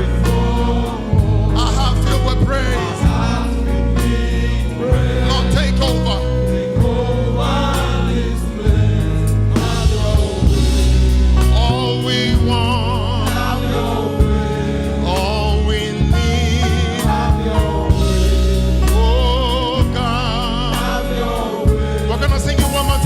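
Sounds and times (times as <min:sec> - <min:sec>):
band accompaniment: 0:00.0 - 0:23.0
bass notes: 0:00.0 - 0:23.0
gospel choir singing: 0:00.0 - 0:23.0
drum hits: 0:08.7 - 0:12.8, 0:17.0 - 0:19.2.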